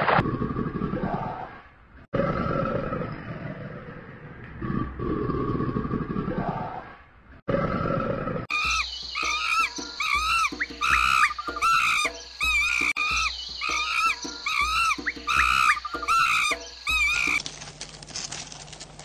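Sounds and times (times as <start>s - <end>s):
deep rough animal roar: 2.1s - 8.5s
short high squeaky calls: 8.5s - 17.4s.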